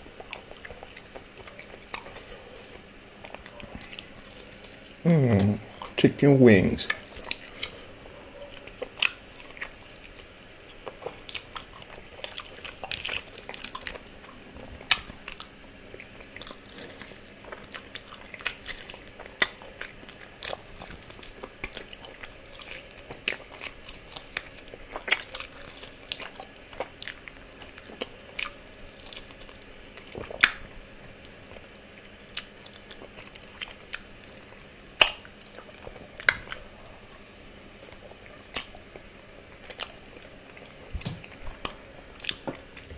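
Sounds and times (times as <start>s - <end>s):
chewing chicken wings: 0.0s - 42.9s.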